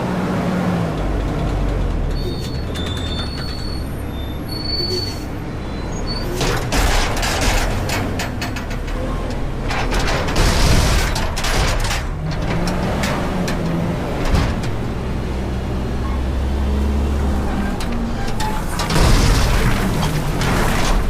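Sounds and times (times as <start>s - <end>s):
garbage truck engine: 0.0s - 21.0s
metal clanks and rattles: 6.0s - 16.3s, 17.2s - 21.0s
rushing clatter: 6.3s - 15.6s, 16.7s - 21.0s.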